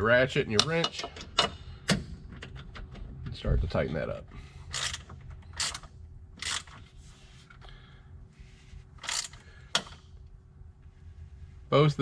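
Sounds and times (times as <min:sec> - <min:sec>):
socket ratchet clicking: 0:04.7 - 0:06.8, 0:09.0 - 0:10.0.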